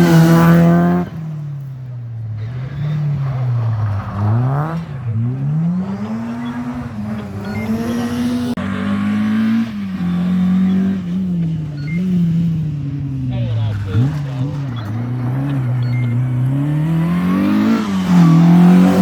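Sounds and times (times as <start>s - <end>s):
car engine revving hard: 0.0s - 1.4s, 2.2s - 19.0s.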